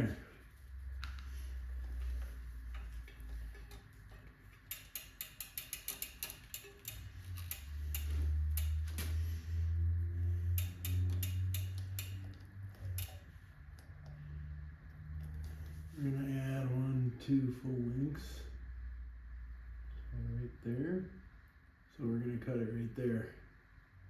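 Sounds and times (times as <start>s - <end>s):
bicycle chain clicking: 1.0s - 9.5s, 10.3s - 13.4s.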